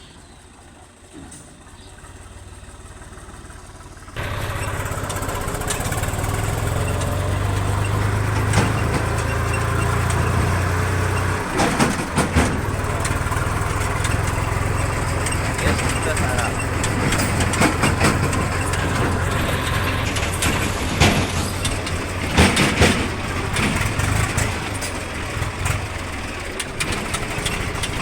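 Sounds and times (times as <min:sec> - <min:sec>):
tractor diesel engine running: 0:00.0 - 0:28.0
sharp knocks: 0:05.7 - 0:24.2.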